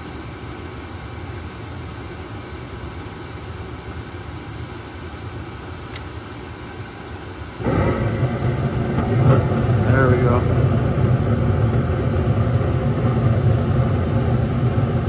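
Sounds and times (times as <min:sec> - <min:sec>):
furnace burners lighting with rush: 0:07.3 - 0:15.0
draft inducer motor humming: 0:07.5 - 0:15.0.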